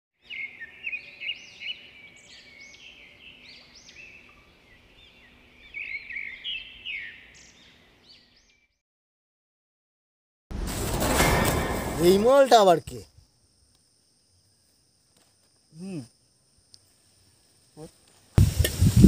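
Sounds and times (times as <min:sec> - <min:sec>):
small birds chirping and trilling: 0:00.2 - 0:08.8.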